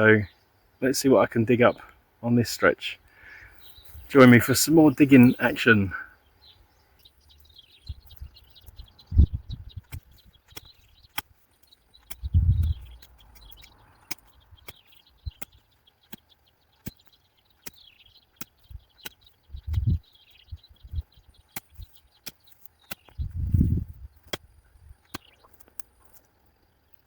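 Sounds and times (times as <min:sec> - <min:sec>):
birds chirping: 0:00.0 - 0:27.0
small clicks: 0:09.8 - 0:17.8.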